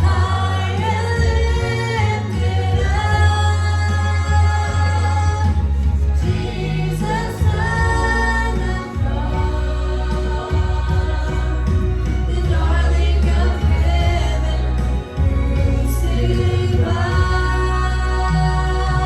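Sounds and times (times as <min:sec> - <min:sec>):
band with strong bass: 0:00.0 - 0:19.0
female lead singer: 0:00.0 - 0:19.0
group of voices singing: 0:00.0 - 0:19.0.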